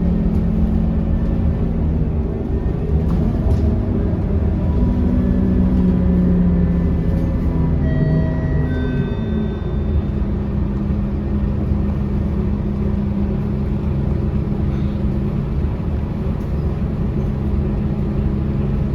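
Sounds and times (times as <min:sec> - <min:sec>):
bus diesel engine humming: 0:00.0 - 0:18.9
brief high tones: 0:07.8 - 0:10.1.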